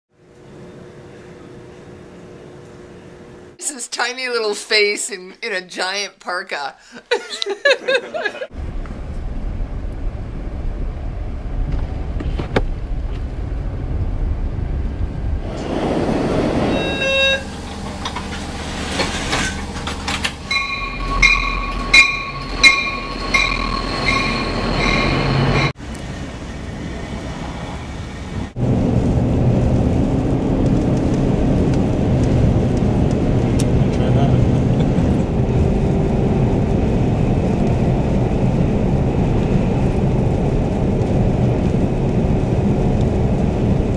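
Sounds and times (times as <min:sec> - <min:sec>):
train rumbling on rails: 0:08.5 - 0:43.9
multi-note train horn pulses: 0:16.7 - 0:17.6, 0:20.5 - 0:25.7.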